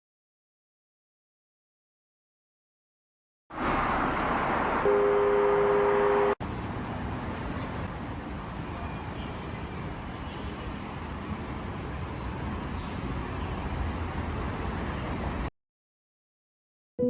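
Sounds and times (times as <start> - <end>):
street traffic: 3.5 - 15.5
two-tone vehicle horn honk: 4.8 - 6.4.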